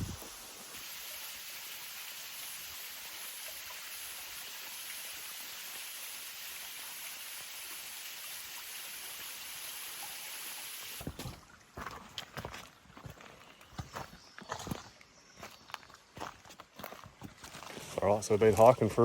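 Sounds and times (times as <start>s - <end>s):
creek water flowing: 0.0s - 13.4s
footsteps on forest floor: 11.0s - 19.0s.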